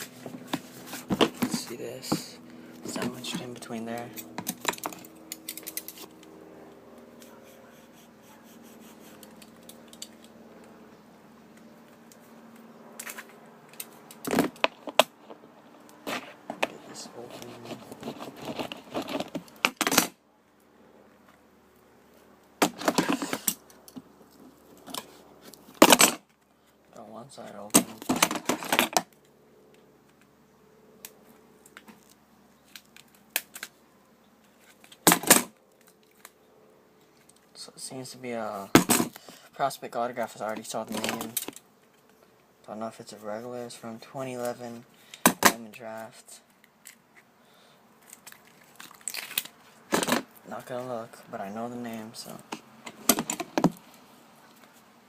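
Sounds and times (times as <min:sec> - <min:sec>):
faint steady hum: 0:00.0 - 0:55.0
packaging clicks and crinkles: 0:48.0 - 0:50.1
packaging crackling loudly: 0:48.1 - 0:50.1.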